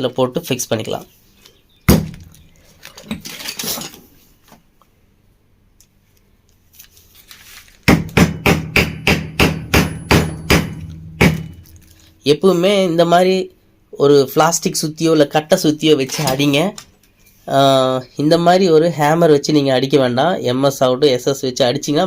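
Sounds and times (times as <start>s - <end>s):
hammer tapping metal: 7.9s - 11.8s.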